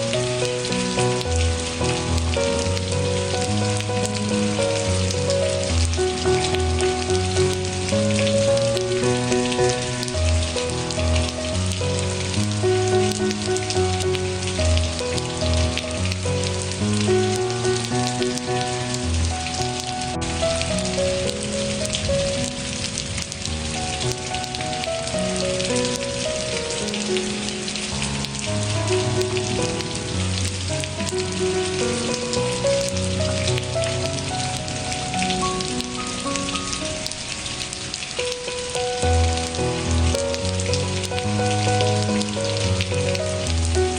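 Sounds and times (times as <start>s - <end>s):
rain pattering: 0.0s - 43.9s
soft background music: 0.0s - 43.9s.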